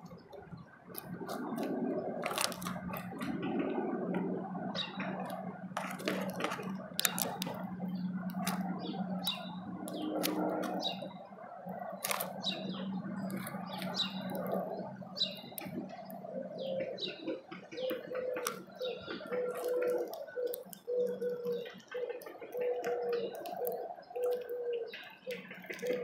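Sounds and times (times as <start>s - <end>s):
low steady hum: 0.0s - 26.0s
small birds chirping: 4.5s - 26.0s
sharp clicks and taps: 5.1s - 10.8s, 17.6s - 26.0s.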